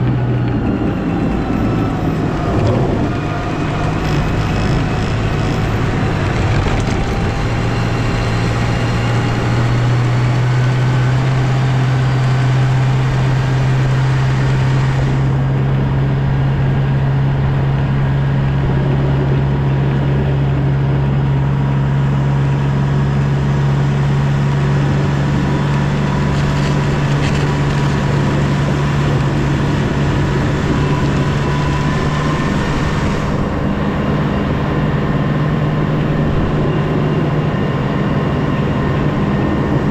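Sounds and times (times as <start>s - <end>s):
snowplow engine droning: 0.0s - 39.9s.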